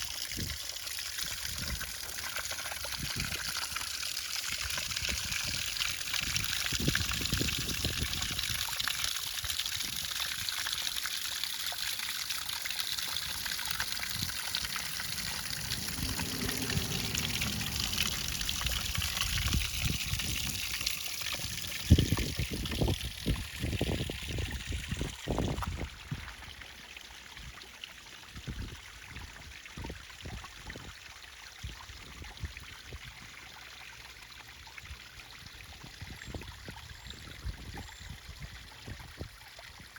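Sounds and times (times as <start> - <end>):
water splashing over waterfall: 0.0 - 27.2
low rumble: 13.2 - 20.7.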